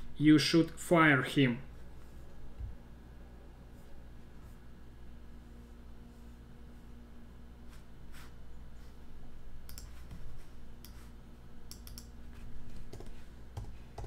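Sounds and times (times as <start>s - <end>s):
faint low hum: 0.0s - 14.0s
mouse and keyboard clicks: 11.7s - 12.1s.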